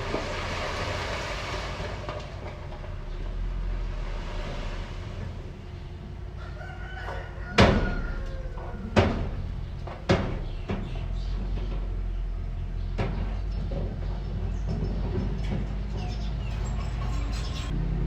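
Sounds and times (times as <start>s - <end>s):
heavy machinery engine humming: 0.0s - 18.0s
rooster crowing: 6.3s - 9.2s
sharp knocks: 7.6s - 11.8s.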